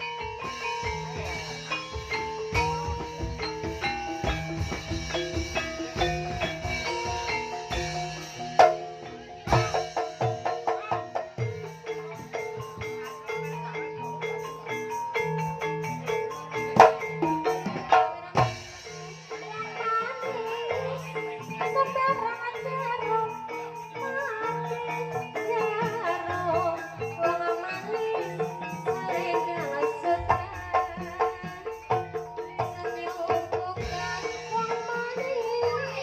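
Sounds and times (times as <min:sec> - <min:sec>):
drum strokes: 0:00.0 - 0:22.4.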